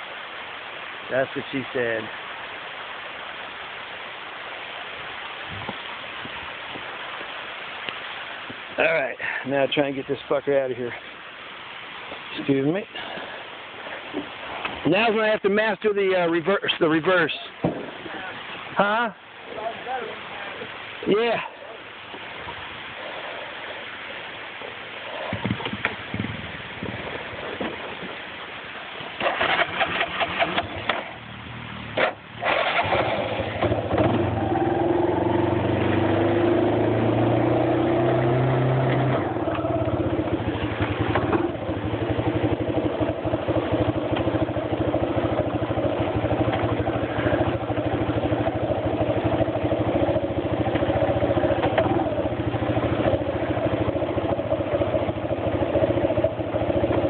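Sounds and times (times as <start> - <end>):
engine cranking: 29.2 - 31.1, 32.0 - 34.3
engine running and revving: 31.4 - 57.0.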